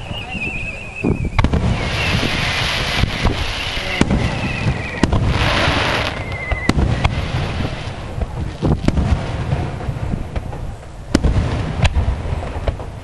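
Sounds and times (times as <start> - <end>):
firework whistle: 0.0 - 8.0
echoing booms: 0.0 - 13.0
firework bangs: 0.0 - 13.0
firework crackling: 0.0 - 13.0.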